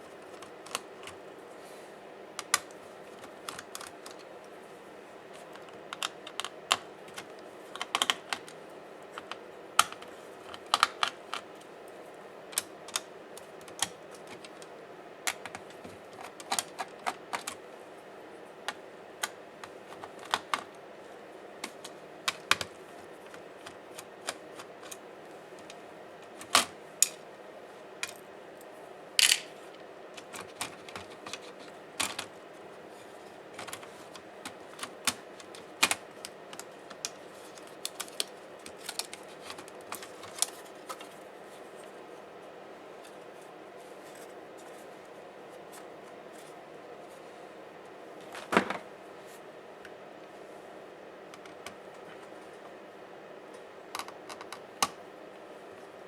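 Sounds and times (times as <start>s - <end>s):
faint background hum: 0.0s - 56.0s
tools clicking and tapping: 29.2s - 29.5s.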